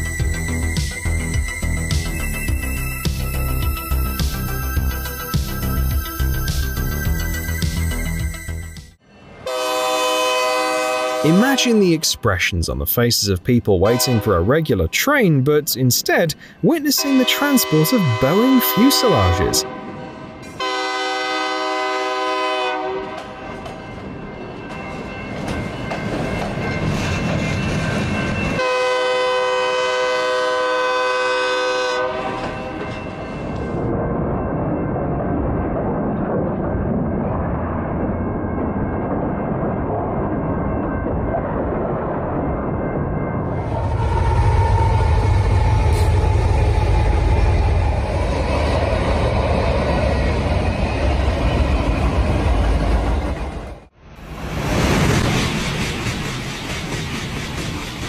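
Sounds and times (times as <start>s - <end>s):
train rumbling on rails: 0.0s - 58.0s
train horn blast: 9.4s - 11.7s, 13.8s - 14.4s, 17.0s - 23.6s, 28.6s - 32.7s.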